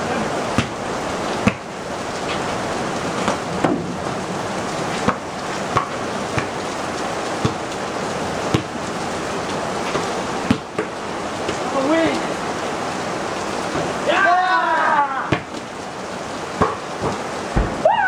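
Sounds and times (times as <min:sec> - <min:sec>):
steady rain falling: 0:00.0 - 0:18.0
basketball thudding on wet court: 0:00.6 - 0:00.8, 0:01.4 - 0:01.7, 0:03.2 - 0:04.1, 0:05.0 - 0:06.7, 0:07.4 - 0:07.8, 0:08.4 - 0:08.8, 0:09.8 - 0:11.7, 0:15.3 - 0:15.6, 0:16.6 - 0:17.9.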